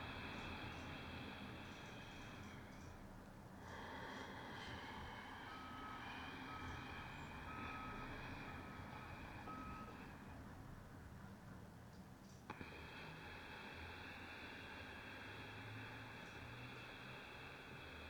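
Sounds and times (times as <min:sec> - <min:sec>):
reversing alarm beeping: 0:05.5 - 0:10.5.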